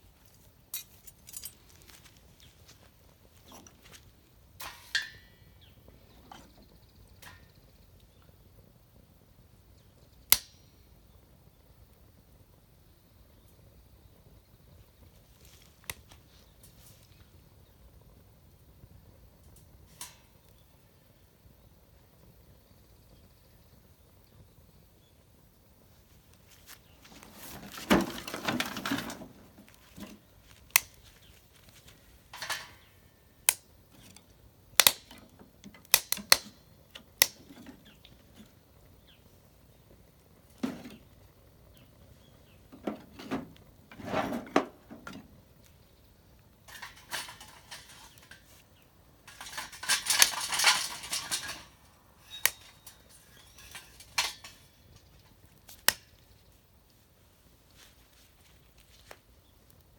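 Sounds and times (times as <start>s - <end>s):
hard objects clinking and knocking: 0.7s - 2.0s
rustling: 26.0s - 33.1s, 46.6s - 59.9s.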